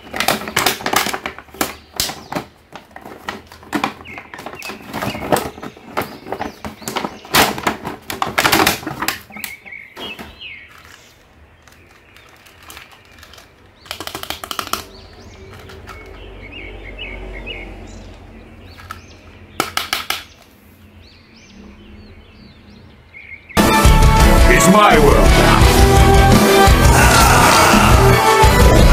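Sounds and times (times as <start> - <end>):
plastic packaging rustling: 0.0 - 16.0
paper sheet crinkling: 10.6 - 14.8.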